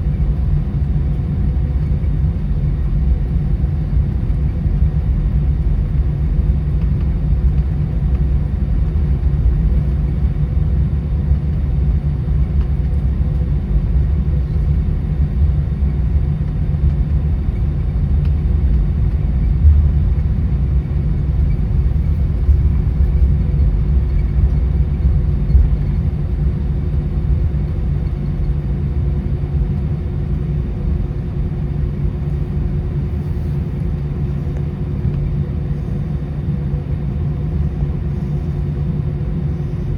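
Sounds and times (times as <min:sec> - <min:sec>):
airplane cabin rumble: 0:00.0 - 0:39.9
steady hums: 0:16.2 - 0:39.9.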